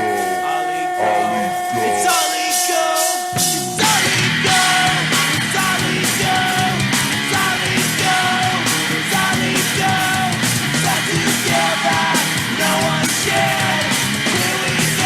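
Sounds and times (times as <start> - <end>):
punk rock band playing: 0.0 - 15.0.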